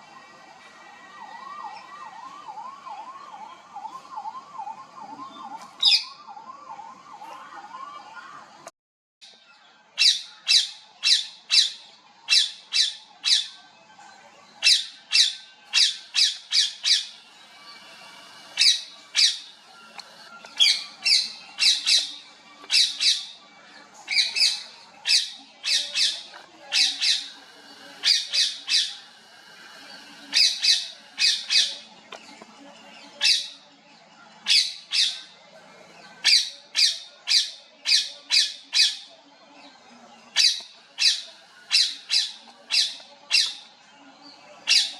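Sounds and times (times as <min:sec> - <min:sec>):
parrots squawking: 0:14.6 - 0:19.6, 0:20.6 - 0:23.4, 0:24.1 - 0:31.9, 0:40.4 - 0:43.6, 0:44.7 - 0:44.9.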